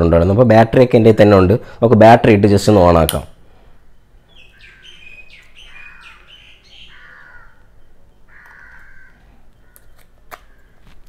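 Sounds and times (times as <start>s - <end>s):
birds chirping and calling: 3.7s - 10.8s
longer bird call: 3.7s - 10.8s.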